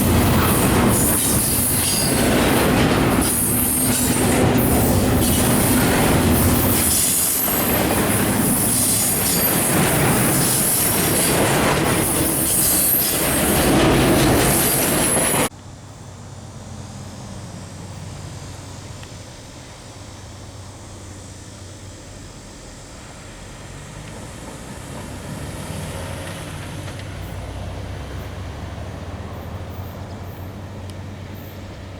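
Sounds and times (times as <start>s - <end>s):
freight train cars rolling: 0.0s - 15.5s
train wheels squealing: 0.0s - 15.5s, 29.2s - 31.9s
wheels clicking over rail joints: 0.0s - 15.5s, 26.2s - 28.3s.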